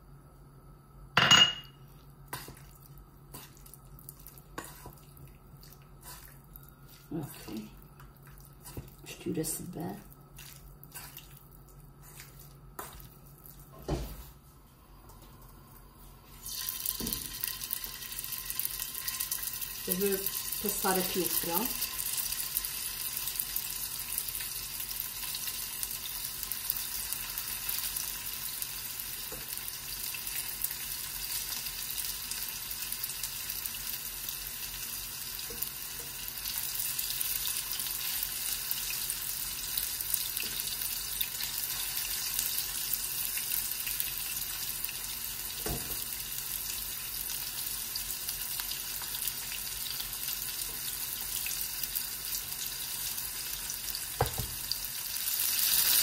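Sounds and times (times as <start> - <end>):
chicken frying in oil: 16.4 - 56.0.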